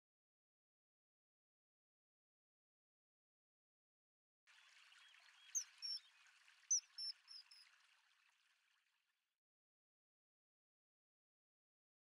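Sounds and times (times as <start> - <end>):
high bird chirps: 6.7 - 7.6.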